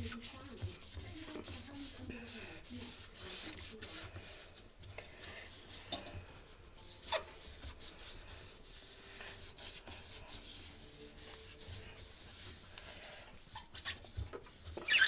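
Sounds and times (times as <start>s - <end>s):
rubber squeak: 0.0s - 0.4s, 13.4s - 15.0s
sponge scrubbing rubber seal: 0.0s - 4.6s, 13.3s - 15.0s.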